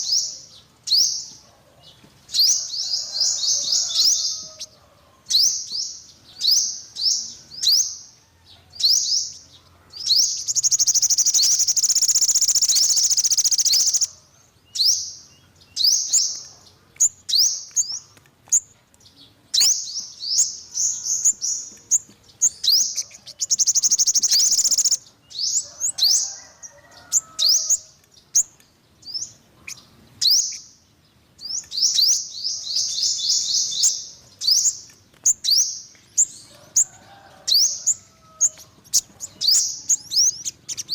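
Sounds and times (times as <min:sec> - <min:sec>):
bird sharp high chirps: 0:10.0 - 0:15.1, 0:19.5 - 0:26.2
bird buzzing trills: 0:10.6 - 0:14.1, 0:23.5 - 0:25.0
bird repeated notes: 0:10.6 - 0:14.1, 0:23.6 - 0:25.0.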